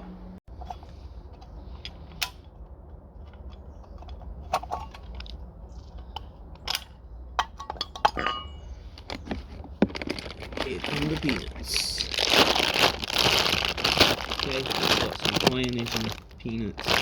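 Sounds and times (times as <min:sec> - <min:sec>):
low steady rumble: 0:00.0 - 0:17.0
metallic ring: 0:07.7 - 0:08.7.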